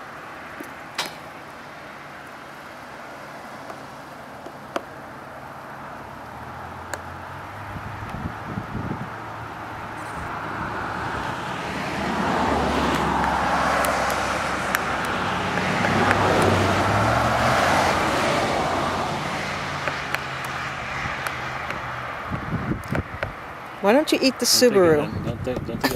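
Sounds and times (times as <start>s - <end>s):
car passing by: 5.4s - 25.1s.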